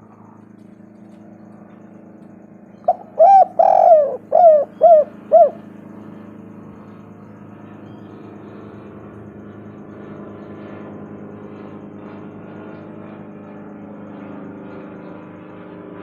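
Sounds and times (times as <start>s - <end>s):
dove cooing: 2.7s - 6.2s.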